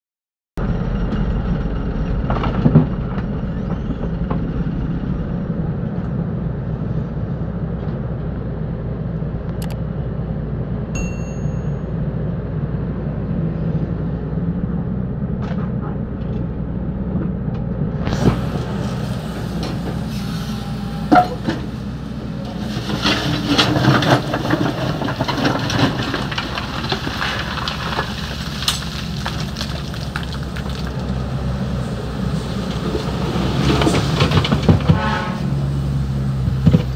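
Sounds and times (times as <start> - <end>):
diesel engine running under load: 11.5 - 36.9
bucket scraping sand and gravel: 18.1 - 35.4.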